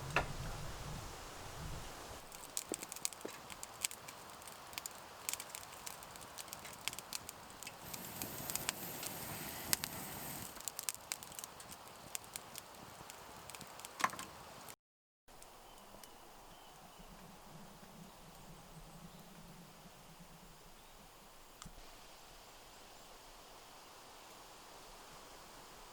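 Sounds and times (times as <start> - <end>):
small clicks and crackles: 2.2 - 16.2.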